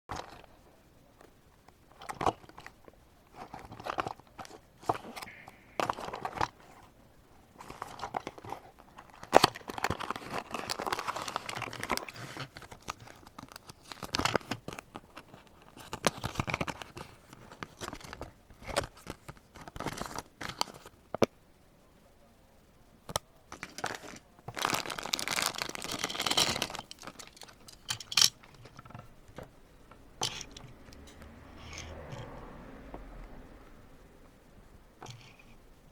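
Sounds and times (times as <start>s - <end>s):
cardboard box crinkling and rustling: 1.9s - 6.9s, 7.6s - 20.9s, 23.6s - 29.5s.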